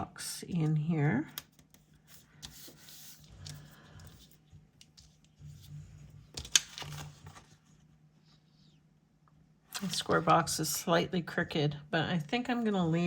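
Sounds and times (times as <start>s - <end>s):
paper stickers rustling and peeling: 1.3s - 7.8s.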